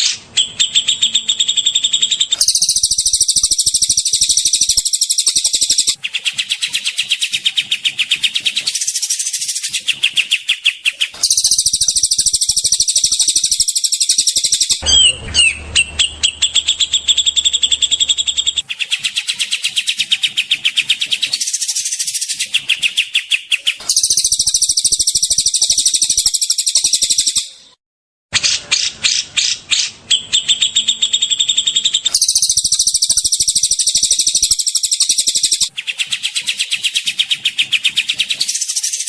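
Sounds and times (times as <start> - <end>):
songbird harsh rapid trills: 0.0 - 27.6, 28.4 - 39.0.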